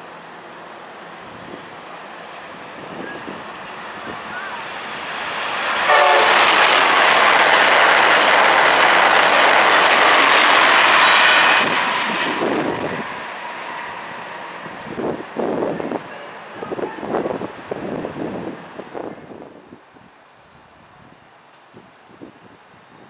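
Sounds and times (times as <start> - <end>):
train passing at high speed: 0.0 - 19.8
train horn note: 5.8 - 7.0.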